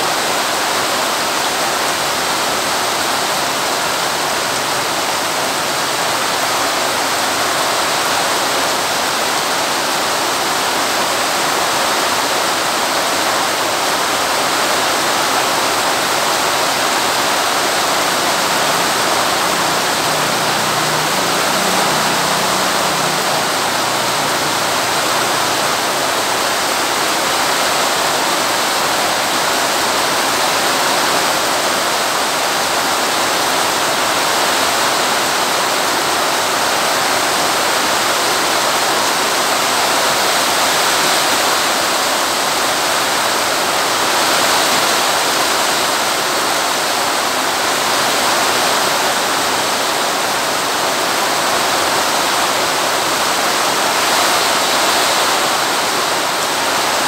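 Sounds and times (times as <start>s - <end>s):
heavy rain on concrete: 0.0s - 57.0s
water streaming off roof: 0.0s - 57.0s.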